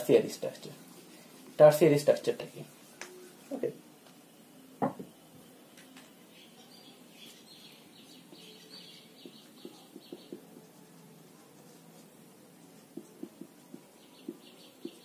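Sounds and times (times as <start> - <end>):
small bird twittering: 6.4 - 10.4, 14.0 - 15.0
marker tapping on whiteboard: 9.2 - 10.5, 12.9 - 15.0.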